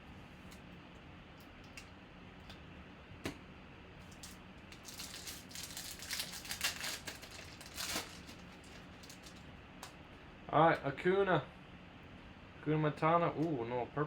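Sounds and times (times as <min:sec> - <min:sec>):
foil wrapper tearing and crinkling: 0:04.0 - 0:09.5.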